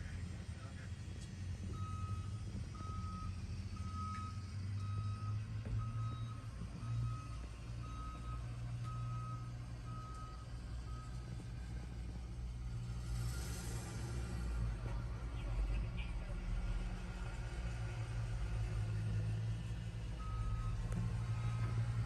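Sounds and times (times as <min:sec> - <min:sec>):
low engine rumble: 0:00.0 - 0:22.0
reversing alarm beeping: 0:01.8 - 0:11.1, 0:20.2 - 0:21.9.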